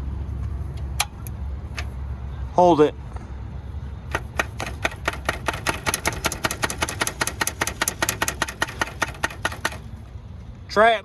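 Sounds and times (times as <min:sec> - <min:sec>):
starter solenoid clicking rapidly: 0:04.1 - 0:10.0.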